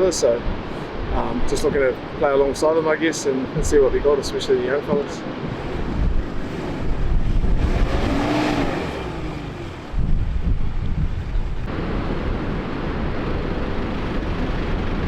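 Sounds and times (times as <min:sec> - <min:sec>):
wind buffeting microphone: 0:03.4 - 0:15.0.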